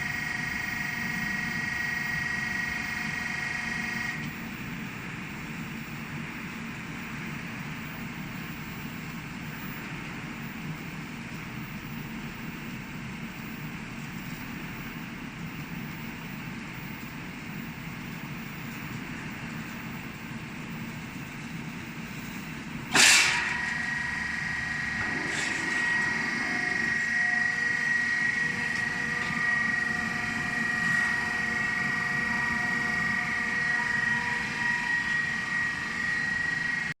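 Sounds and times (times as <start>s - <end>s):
welding machine humming: 0.0s - 5.0s, 15.6s - 36.9s
high multi-tone whine: 0.0s - 10.8s, 11.4s - 37.0s
sharp metal clank: 22.9s - 23.8s.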